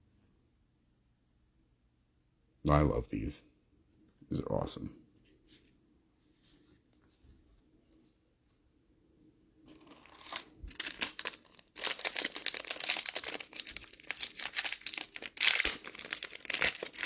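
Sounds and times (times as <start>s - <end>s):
card pack wrapper tearing and crinkling: 9.7s - 17.0s.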